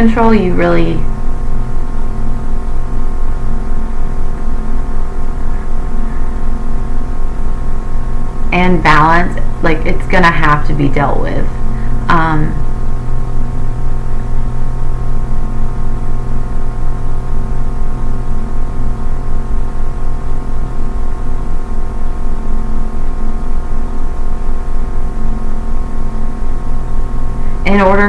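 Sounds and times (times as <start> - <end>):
drone of held tones: 0.0 - 28.0.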